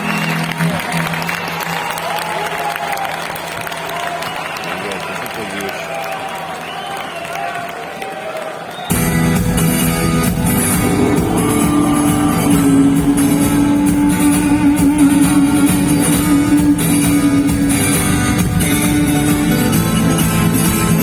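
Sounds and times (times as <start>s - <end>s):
live rock band playing: 8.9s - 21.0s.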